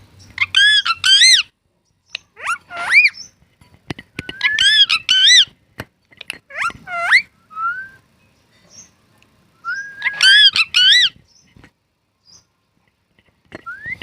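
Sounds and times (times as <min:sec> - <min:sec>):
parrot whistling and calling: 0:00.4 - 0:01.5, 0:02.1 - 0:03.4, 0:04.2 - 0:05.5, 0:06.5 - 0:08.0, 0:09.5 - 0:11.2, 0:13.6 - 0:14.0.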